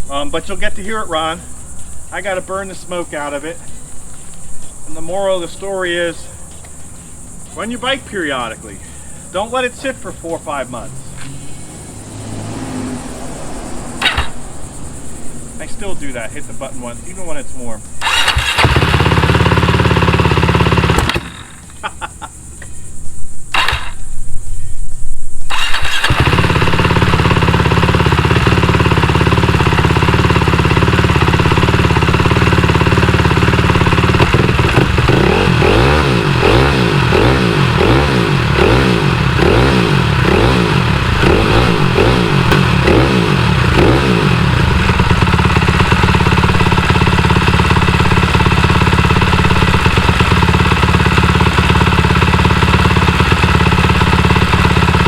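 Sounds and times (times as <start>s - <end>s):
dirt bike engine running: 11.2s - 16.7s, 17.8s - 22.3s, 23.4s - 24.0s, 25.5s - 55.0s
electric starter cranking: 14.0s - 14.4s, 17.9s - 21.8s, 23.5s - 24.1s, 25.5s - 55.0s.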